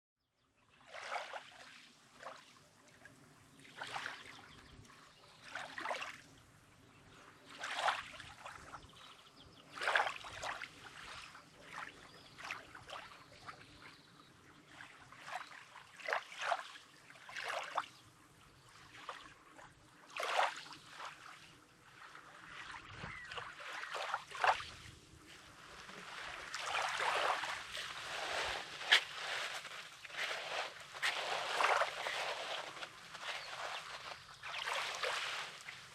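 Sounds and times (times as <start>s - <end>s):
small waves lapping on shore: 0.7s - 35.9s.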